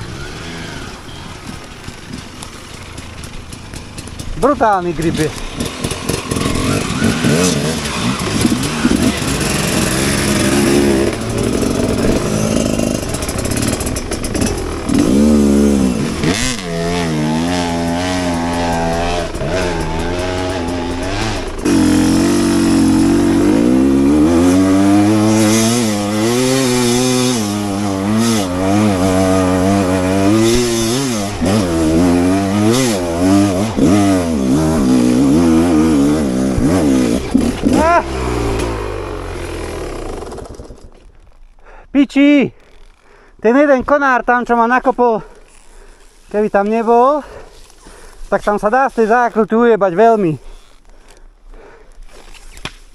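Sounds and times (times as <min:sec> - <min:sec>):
dirt bike engine revving: 0:00.0 - 0:41.1.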